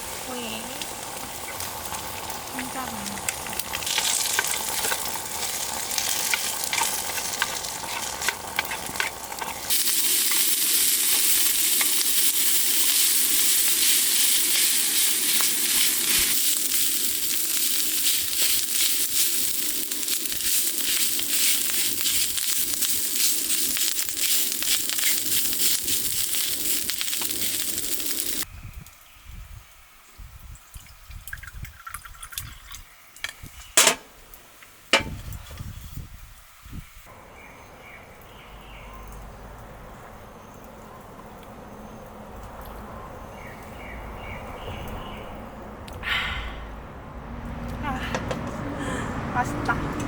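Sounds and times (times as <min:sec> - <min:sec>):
food sizzling in hot oil: 0:00.0 - 0:28.5.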